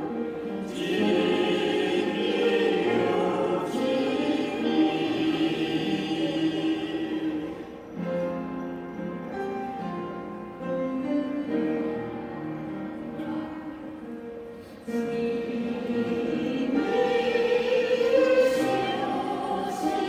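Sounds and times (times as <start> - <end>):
choir singing: 0.0 - 8.9, 13.2 - 20.0.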